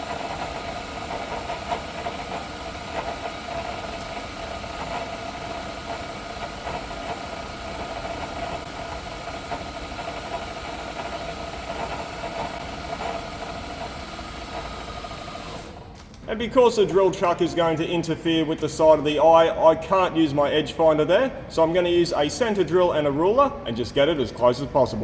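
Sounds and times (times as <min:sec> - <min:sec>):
milling machine whining: 0:00.0 - 0:15.9.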